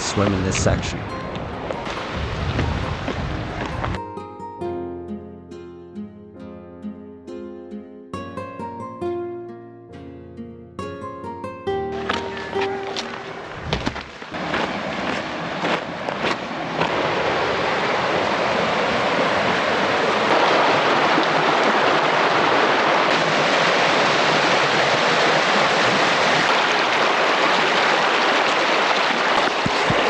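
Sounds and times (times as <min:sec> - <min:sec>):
water rushing over rocks: 0:00.0 - 0:04.0, 0:11.9 - 0:30.0.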